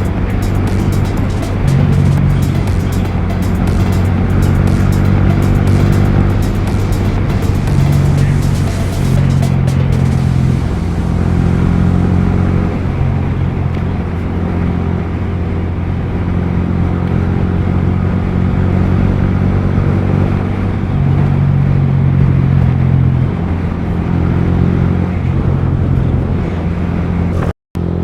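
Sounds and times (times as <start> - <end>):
motorcycle engine running: 0.0 - 16.1.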